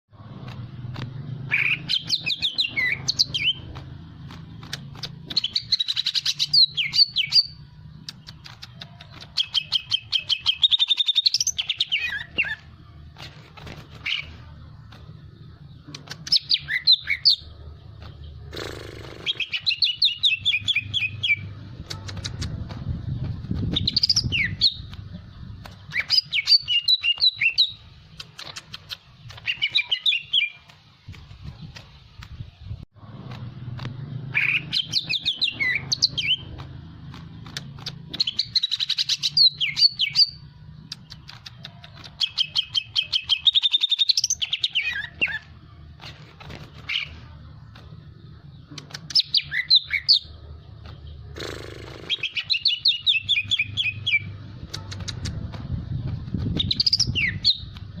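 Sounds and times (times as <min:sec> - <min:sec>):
sharp clicks: 0:00.3 - 0:01.3, 0:02.0 - 0:06.4, 0:07.9 - 0:10.7, 0:12.6 - 0:16.6, 0:20.6 - 0:34.1, 0:34.9 - 0:40.0, 0:40.8 - 0:43.5, 0:45.2 - 0:49.4, 0:54.4 - 0:58.0
bird chattering and trilling: 0:01.4 - 0:32.8, 0:34.3 - 0:58.0.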